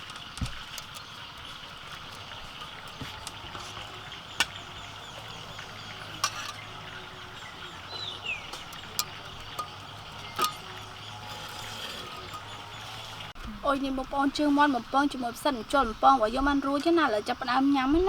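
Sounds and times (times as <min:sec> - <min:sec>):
outdoor background noise: 0:00.0 - 0:18.0
falling bird chirp: 0:00.8 - 0:13.4.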